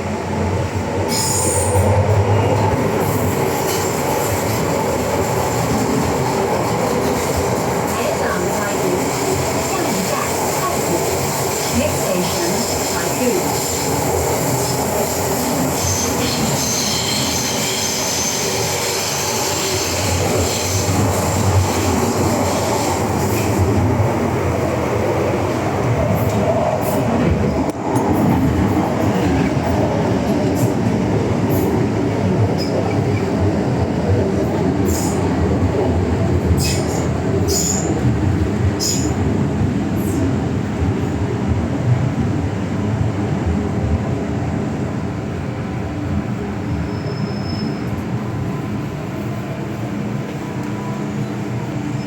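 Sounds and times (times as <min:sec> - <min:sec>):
metro train rumbling: 0:00.0 - 0:52.0
wheel squeal: 0:15.8 - 0:20.0, 0:46.8 - 0:47.9
squeaks and clicks from wheels: 0:36.6 - 0:37.9, 0:46.8 - 0:48.0.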